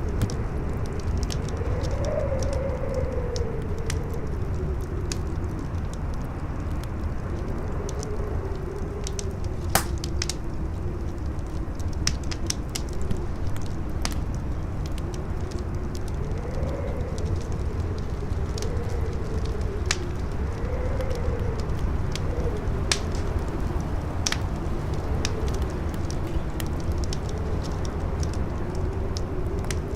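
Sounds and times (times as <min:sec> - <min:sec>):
campfire crackling and popping: 0:00.0 - 0:29.9
strong wind howling: 0:00.0 - 0:29.9.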